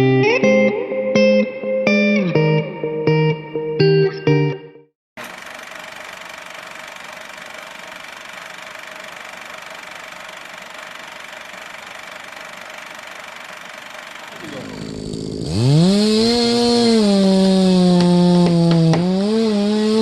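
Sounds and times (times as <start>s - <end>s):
small engine idling: 5.2s - 20.0s.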